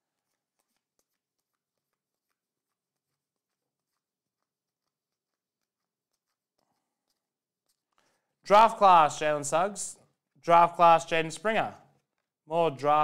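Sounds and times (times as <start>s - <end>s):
trading cards being handled: 0.0s - 8.4s, 11.8s - 12.4s.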